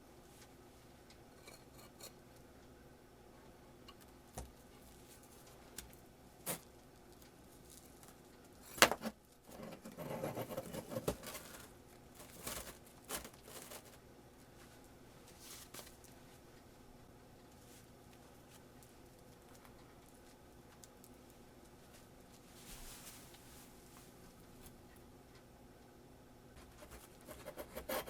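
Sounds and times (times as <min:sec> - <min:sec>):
rustling: 0:10.5 - 0:14.0, 0:14.6 - 0:16.2, 0:21.8 - 0:24.2.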